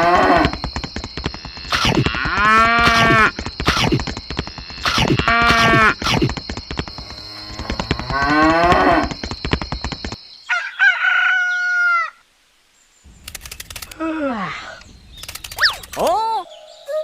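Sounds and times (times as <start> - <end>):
high-pitched animal calls: 0.0 - 4.0, 4.7 - 6.3, 13.8 - 17.0
fast clicking rattle: 0.5 - 10.2, 13.2 - 14.0, 15.2 - 16.1.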